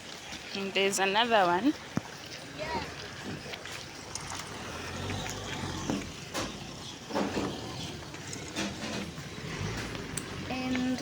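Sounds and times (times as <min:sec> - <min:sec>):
vehicle driving past: 0:04.0 - 0:11.0.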